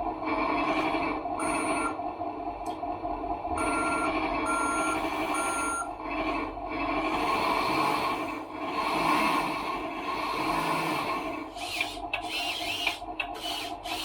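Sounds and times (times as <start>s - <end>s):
steady background hum: 0.0s - 14.0s
short high reversing beeps: 3.6s - 5.9s.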